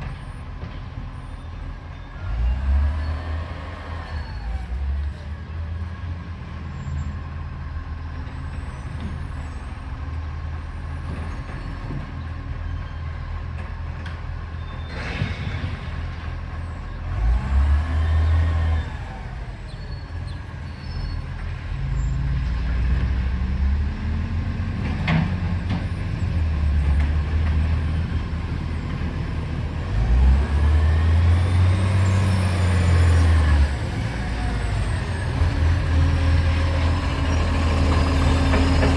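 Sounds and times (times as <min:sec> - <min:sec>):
truck diesel engine revving: 0:15.0 - 0:38.9.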